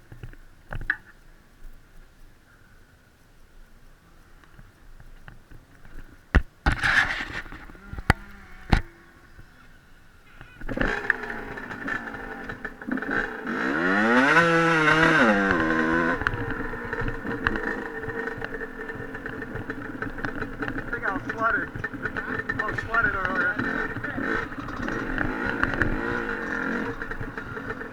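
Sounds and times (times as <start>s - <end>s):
dirt bike engine starting and idling: 6.6s - 27.9s.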